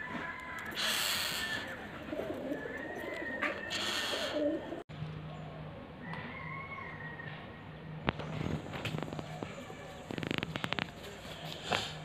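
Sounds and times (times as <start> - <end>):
dove cooing: 0.0 - 4.8
bird calls: 0.0 - 7.0.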